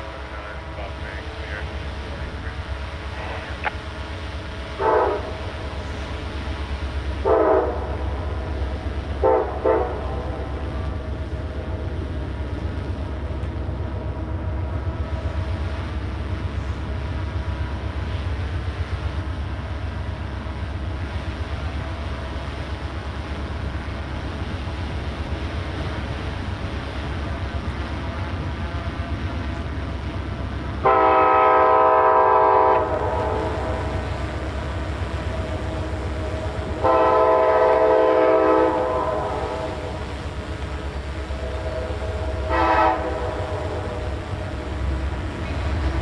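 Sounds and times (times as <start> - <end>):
diesel engine rumble: 0.0 - 46.0
locomotive air horn blasts: 4.7 - 5.7, 7.2 - 8.2, 9.2 - 10.5, 30.8 - 34.1, 36.7 - 40.0, 41.3 - 44.2.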